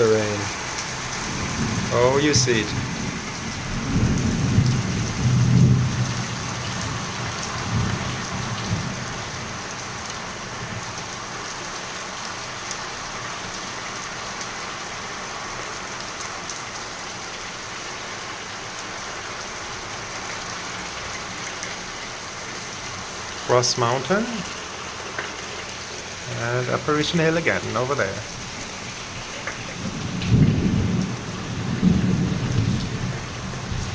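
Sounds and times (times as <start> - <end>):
heavy rain pouring: 0.0 - 33.9
thunder rumbling: 1.2 - 9.4, 26.2 - 33.9.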